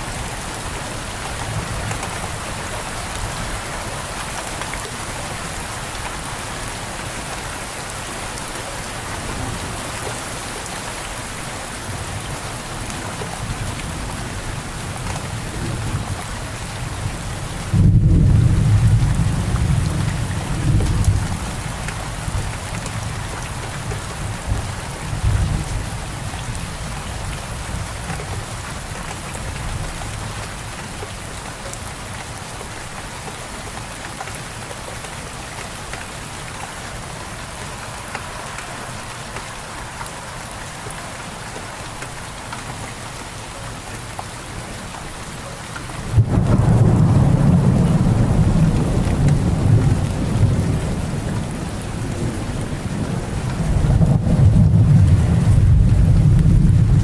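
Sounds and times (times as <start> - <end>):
steady rain falling: 0.0 - 57.0
thunder rumbling: 17.6 - 21.6, 46.1 - 57.0.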